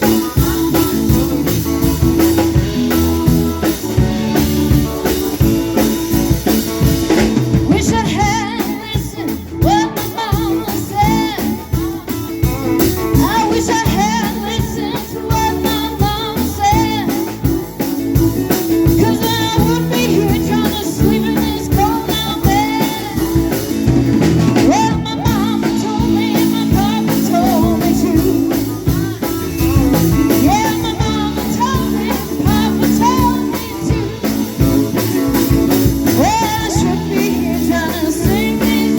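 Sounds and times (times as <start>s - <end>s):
rock band with singer: 0.0s - 38.9s.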